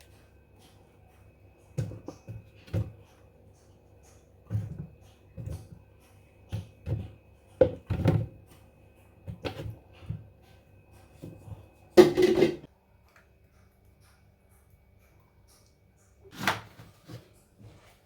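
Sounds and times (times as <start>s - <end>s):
kitchen items knocking and clattering: 1.8s - 3.3s, 4.4s - 10.4s, 11.1s - 12.7s.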